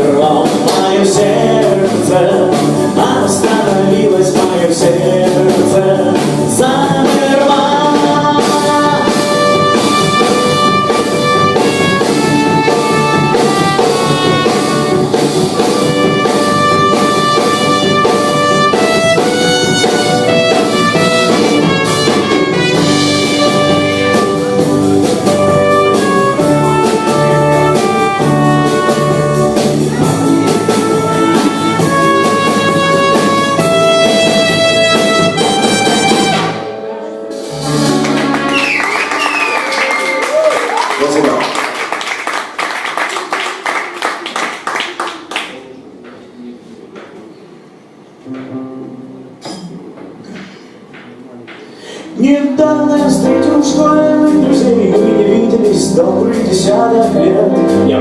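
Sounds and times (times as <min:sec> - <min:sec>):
held stepping lead notes: 0:00.0 - 0:39.6
drum kit: 0:00.0 - 0:40.9, 0:48.3 - 0:58.0
rock band playing: 0:00.0 - 0:40.9, 0:52.5 - 0:58.0.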